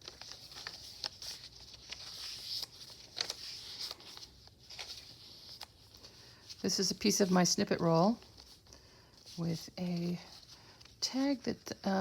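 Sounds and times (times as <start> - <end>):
paper pages rustling: 0.0 - 12.0.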